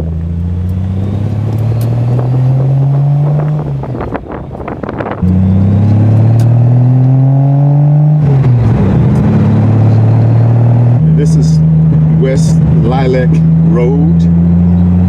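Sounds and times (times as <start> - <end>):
wind noise: 1.0 - 7.2
exhaust pops: 4.9 - 6.8
straight-six engine revving: 5.1 - 15.0.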